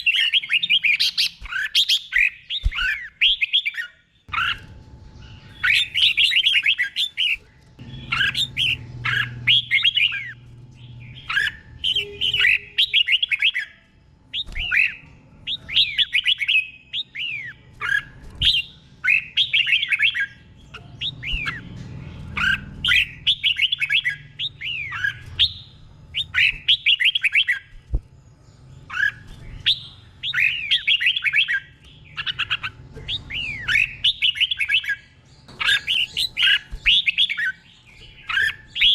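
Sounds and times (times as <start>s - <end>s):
bird singing whistled phrases: 11.2s - 21.6s.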